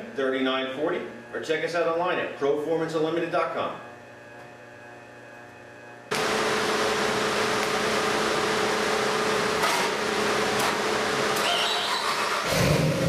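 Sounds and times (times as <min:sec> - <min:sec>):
engine running loud: 0:06.2 - 0:13.0.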